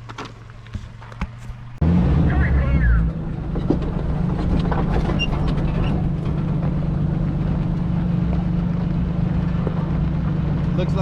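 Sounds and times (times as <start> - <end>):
vehicle engine running: 0.0 - 11.0
knocks and rattles: 3.1 - 7.6.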